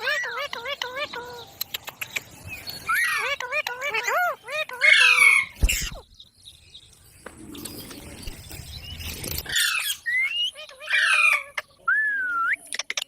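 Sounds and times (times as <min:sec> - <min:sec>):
parrot squawking: 0:02.9 - 0:06.0, 0:09.5 - 0:11.6.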